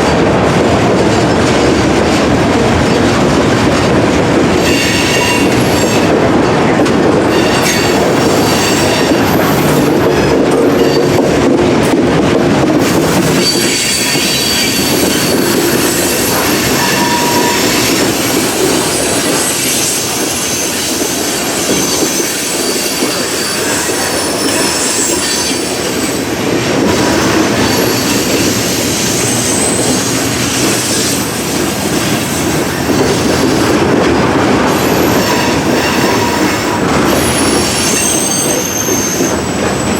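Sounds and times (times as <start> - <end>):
freight train cars rolling: 0.0 - 39.9
wheels squealing: 12.8 - 26.2, 27.0 - 31.3, 34.8 - 39.9.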